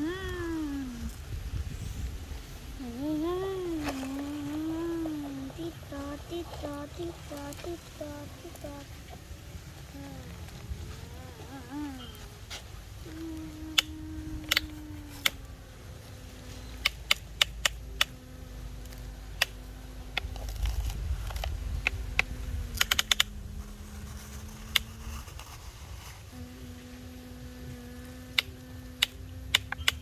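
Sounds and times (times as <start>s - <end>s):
small motor humming: 2.4s - 30.0s
sharp clicks and taps: 13.7s - 15.4s, 21.3s - 23.3s, 28.3s - 30.0s.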